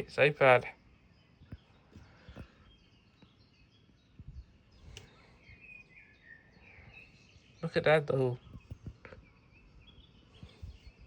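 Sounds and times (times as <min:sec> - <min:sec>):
faint bird chirps: 0:00.0 - 0:11.0
soft clicks: 0:04.9 - 0:05.2.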